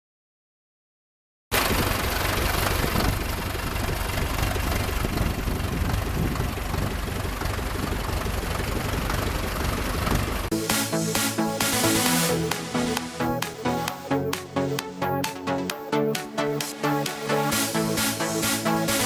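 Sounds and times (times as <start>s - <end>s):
electronic music: 10.5s - 19.0s.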